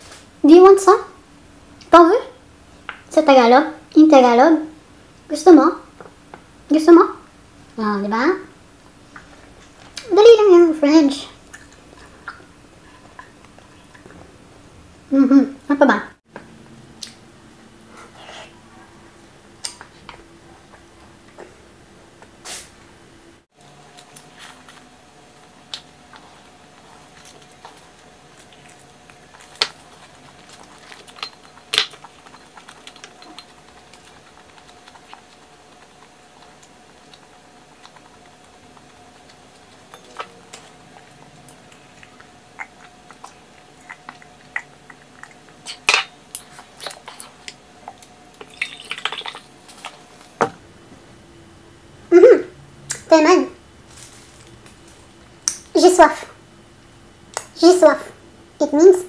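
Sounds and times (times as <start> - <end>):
faint steady hum: 0.0 - 59.0
person chewing: 25.6 - 50.2.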